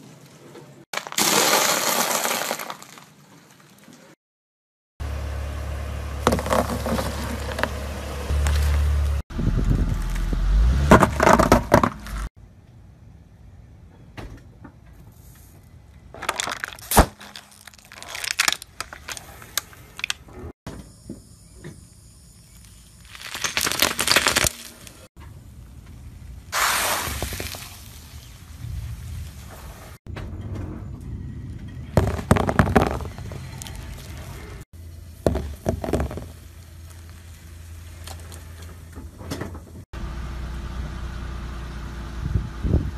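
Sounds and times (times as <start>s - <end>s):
car tyre crushing objects: 1.0s - 3.2s, 6.2s - 12.3s, 16.1s - 20.4s, 23.0s - 25.1s, 32.0s - 39.0s
plastic bottle cracking under tyre: 16.2s - 19.3s, 23.1s - 24.9s, 32.0s - 34.0s, 35.2s - 36.4s
low steady rumble: 28.4s - 42.9s.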